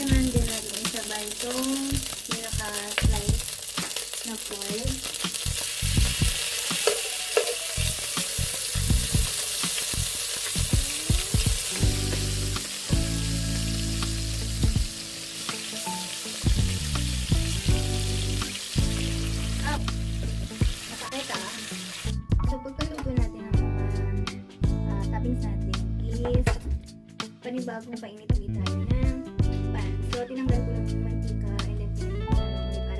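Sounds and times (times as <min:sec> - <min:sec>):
food sizzling in hot oil: 0:00.0 - 0:22.2
background music: 0:00.0 - 0:32.9.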